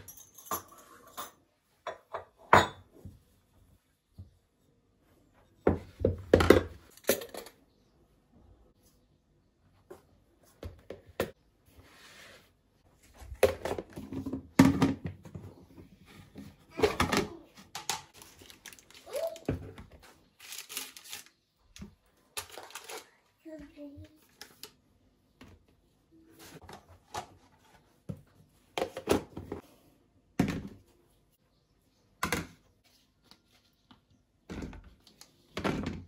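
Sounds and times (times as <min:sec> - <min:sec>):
objects knocking and thudding: 0:05.6 - 0:07.6, 0:13.2 - 0:18.2, 0:26.5 - 0:30.9, 0:34.4 - 0:36.0.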